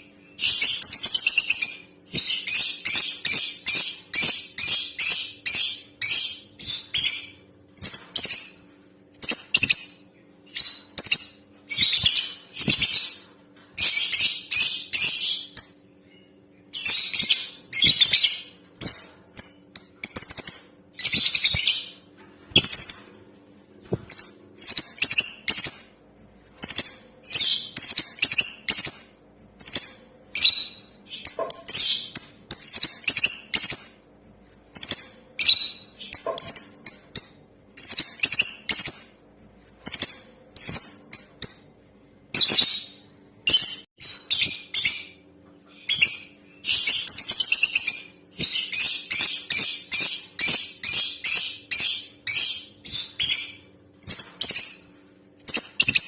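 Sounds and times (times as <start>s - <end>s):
lovebird chattering chirps: 34.8s - 39.3s.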